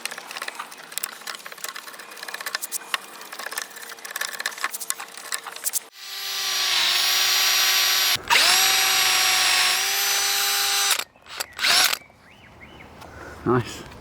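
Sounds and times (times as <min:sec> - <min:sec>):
power tool motor whining: 0:05.9 - 0:12.0.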